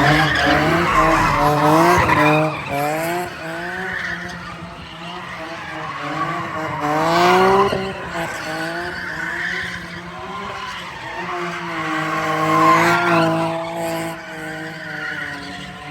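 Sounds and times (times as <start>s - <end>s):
car engine revving hard: 0.0s - 2.3s
tyres skidding: 0.0s - 2.7s.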